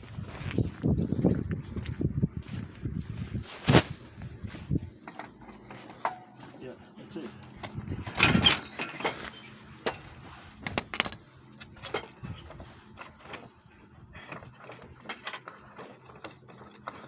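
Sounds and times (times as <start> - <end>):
metal hardware rattling and clicking: 7.6 - 12.3.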